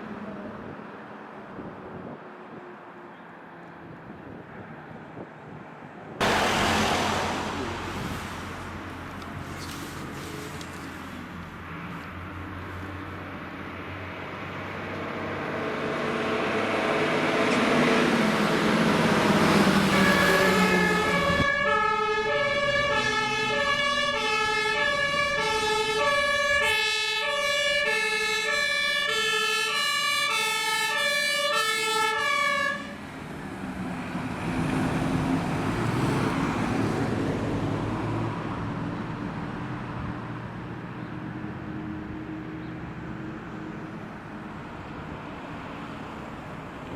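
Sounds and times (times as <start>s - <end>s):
fire engine driving past: 6.2s - 46.9s
two-tone siren: 19.5s - 33.0s.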